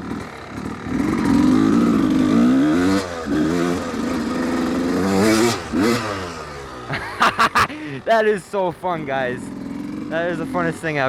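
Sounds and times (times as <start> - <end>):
two-stroke motorcycle engine revving: 0.0 - 11.0.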